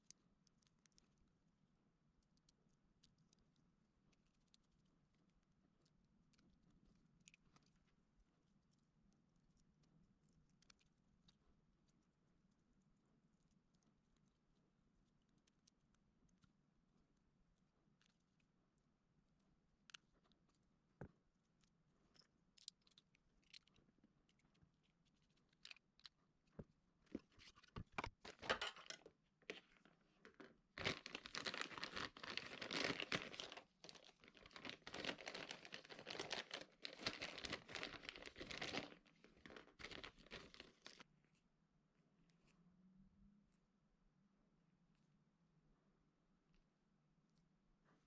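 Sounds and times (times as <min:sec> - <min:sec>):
small clicks and knocks: 0:25.5 - 0:30.6
crinkling rustling handling noise: 0:27.1 - 0:41.0.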